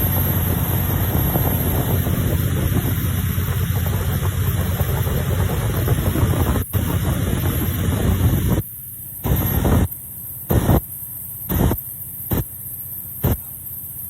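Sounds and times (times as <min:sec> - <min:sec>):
river boat engine rumble: 0:00.0 - 0:08.6
wind noise on microphone: 0:00.0 - 0:09.9.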